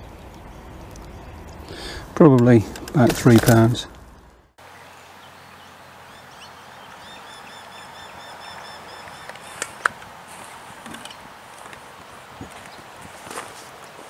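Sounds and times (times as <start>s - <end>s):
steady outdoor hiss: 0.0s - 14.0s
bird chirping: 3.9s - 9.9s.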